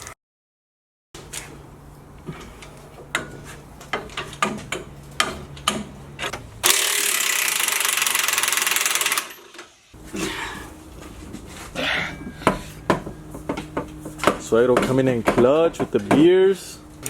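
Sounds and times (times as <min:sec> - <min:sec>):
impact wrench hammering: 0:03.1 - 0:09.4, 0:12.4 - 0:16.6
hand ratchet clicking: 0:06.6 - 0:09.5
low hum: 0:10.0 - 0:17.0.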